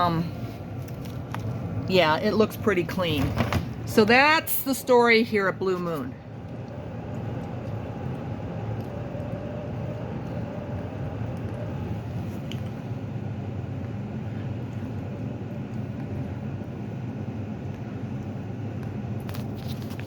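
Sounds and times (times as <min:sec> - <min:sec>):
ventilation equipment humming: 0:00.0 - 0:20.0.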